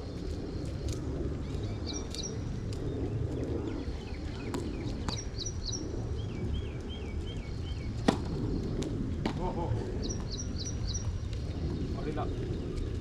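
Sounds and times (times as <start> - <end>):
low outdoor rumble: 0.0 - 13.0
birds chirping: 0.1 - 13.0.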